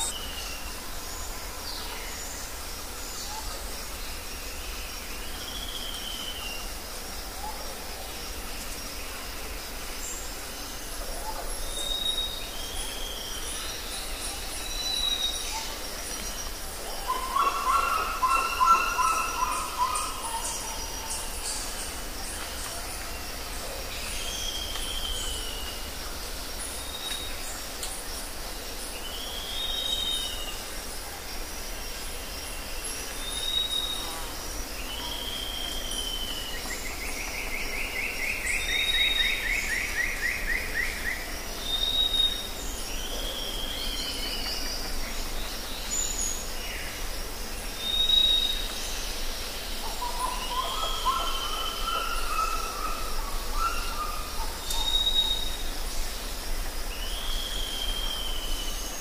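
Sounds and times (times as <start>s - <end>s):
natural background hiss: 0.0s - 59.0s.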